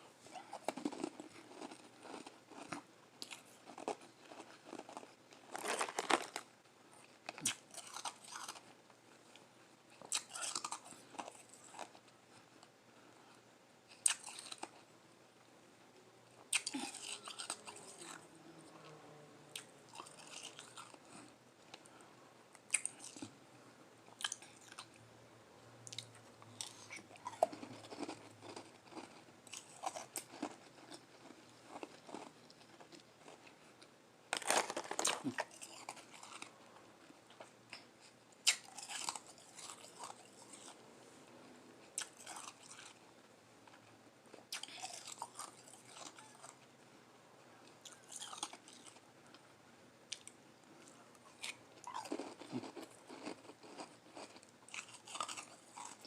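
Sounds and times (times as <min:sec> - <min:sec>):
crunching ice while chewing: 0:00.3 - 0:09.4, 0:10.0 - 0:12.1, 0:13.9 - 0:14.9, 0:16.5 - 0:18.2, 0:19.6 - 0:21.9, 0:25.9 - 0:40.8, 0:41.9 - 0:43.1, 0:44.4 - 0:46.6, 0:47.8 - 0:49.0, 0:50.1 - 0:56.0.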